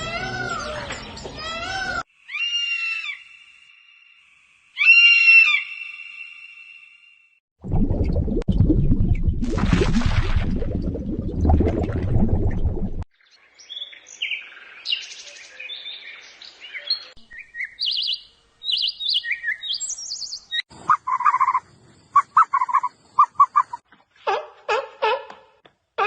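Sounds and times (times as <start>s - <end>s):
birds singing and chirping: 0.0s - 2.0s, 13.2s - 23.8s.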